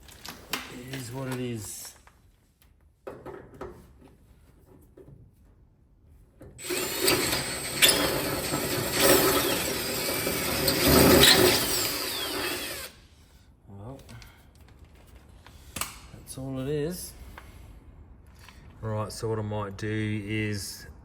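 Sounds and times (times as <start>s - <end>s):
power drill drilling into metal: 6.6s - 13.0s.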